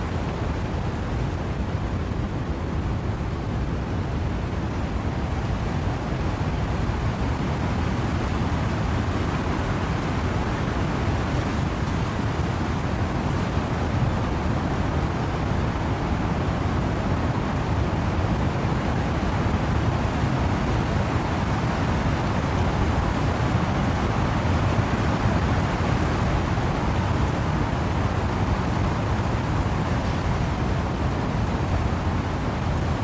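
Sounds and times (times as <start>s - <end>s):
steady rain: 0.0s - 33.0s
wind rushing through trees: 0.0s - 33.0s.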